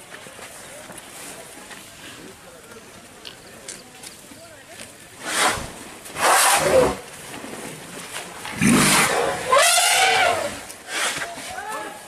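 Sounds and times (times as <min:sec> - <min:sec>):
elephants roaring: 0:06.2 - 0:07.0, 0:08.4 - 0:11.2.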